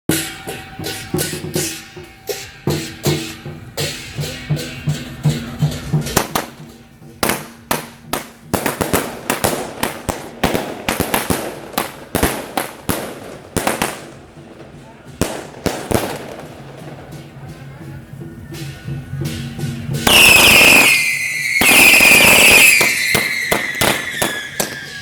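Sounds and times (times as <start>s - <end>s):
procession music with drumbeat: 0.1s - 25.0s
firecrackers cracking: 6.0s - 18.2s, 19.9s - 25.0s.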